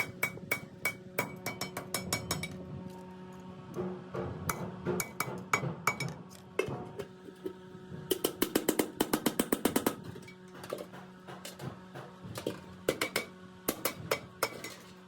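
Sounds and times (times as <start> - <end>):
steady hum: 0.0 - 15.0
metal tapping on sheet steel: 8.1 - 14.8.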